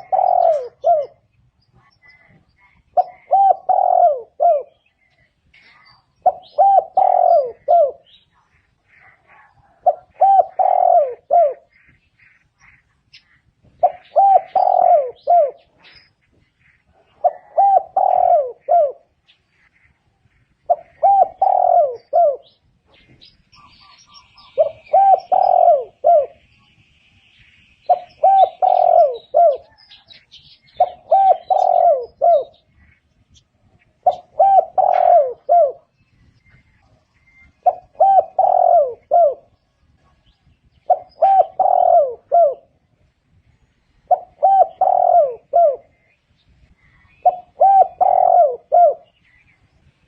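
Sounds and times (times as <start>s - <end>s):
dove cooing: 0.0s - 26.5s, 27.9s - 43.1s, 44.0s - 49.5s
faint high bird chirps: 0.0s - 41.9s.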